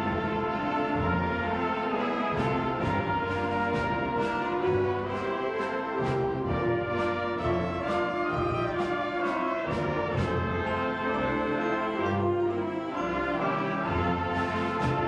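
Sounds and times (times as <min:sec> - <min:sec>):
percussion strikes: 0:00.0 - 0:13.2, 0:13.8 - 0:15.0
wind band holding chords: 0:00.0 - 0:15.0.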